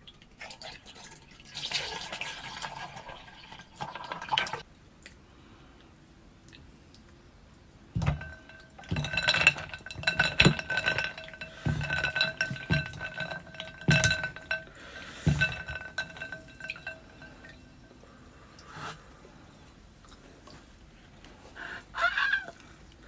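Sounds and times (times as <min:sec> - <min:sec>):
clinks on glass dish: 0:08.0 - 0:17.9
steady ringing tone: 0:08.1 - 0:18.0.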